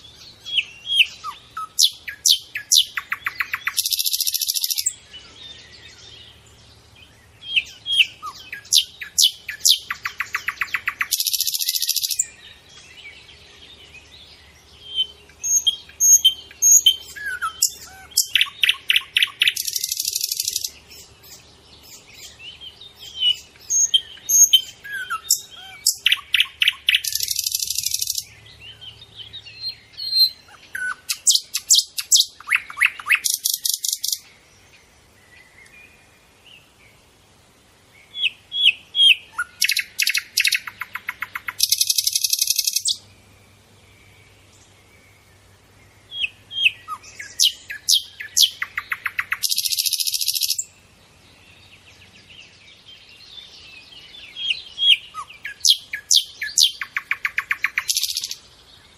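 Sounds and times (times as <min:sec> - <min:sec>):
bird song with trill and rattle: 0:00.0 - 0:37.0, 0:37.8 - 0:58.9.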